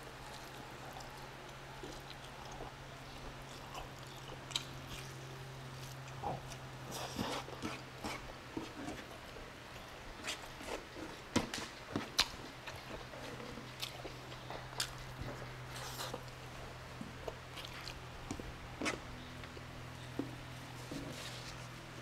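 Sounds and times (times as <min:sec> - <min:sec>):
steady low hum: 0:00.0 - 0:22.0
wet chewing and lip smacks: 0:00.2 - 0:08.4, 0:11.5 - 0:16.4, 0:17.0 - 0:19.7.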